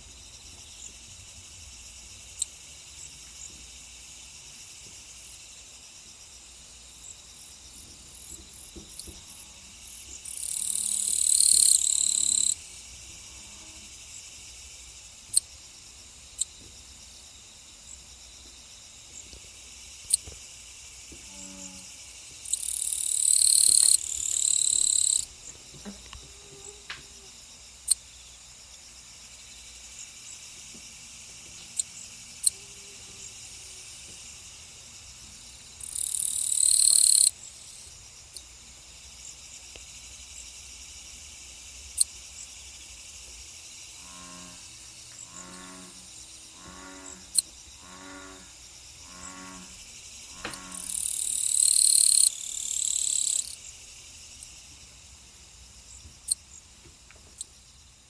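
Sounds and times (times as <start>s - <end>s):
insects chirring: 0.0s - 58.0s
loud insect buzz: 7.4s - 15.6s, 18.8s - 28.0s, 29.5s - 38.4s, 40.8s - 54.6s.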